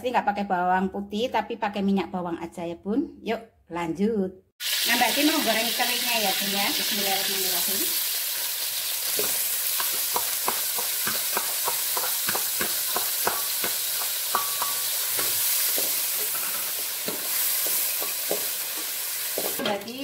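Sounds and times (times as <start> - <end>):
fish sizzling in oil: 4.6 - 19.6
spatula stirring in pan: 8.4 - 19.6.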